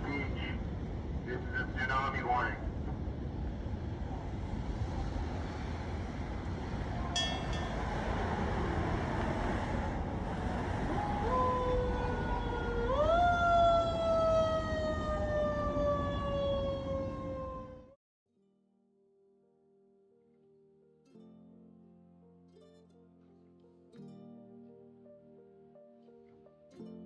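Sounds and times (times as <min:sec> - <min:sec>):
siren rising and falling: 0:11.0 - 0:18.0.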